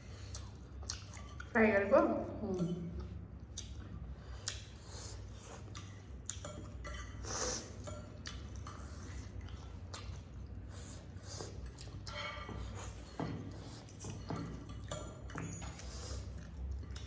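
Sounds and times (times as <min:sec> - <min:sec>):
wet mouth clicks and chewing: 0:00.0 - 0:01.6, 0:02.6 - 0:17.0
low steady hum: 0:00.0 - 0:17.0
breathy sniff: 0:04.7 - 0:05.6, 0:07.2 - 0:07.8.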